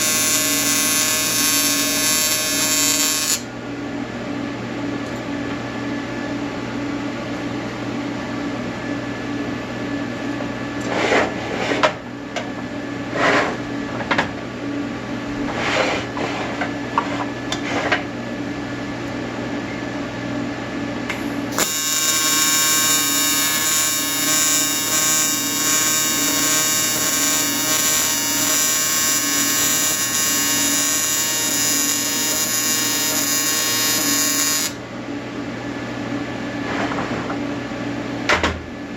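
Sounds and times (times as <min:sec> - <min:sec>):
welding arc buzzing: 0:00.0 - 0:03.5, 0:21.1 - 0:34.8
machine hum: 0:00.0 - 0:10.6, 0:18.7 - 0:36.4.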